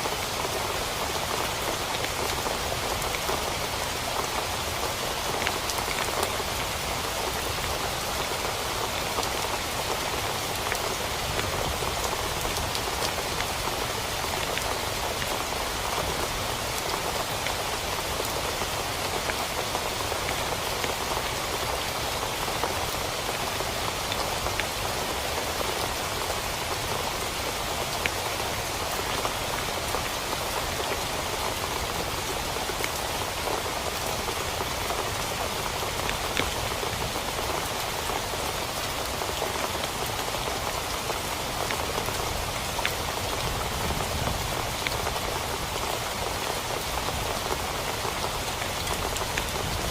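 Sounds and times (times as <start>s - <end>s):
heavy rain drumming on a tent: 0.0s - 49.9s.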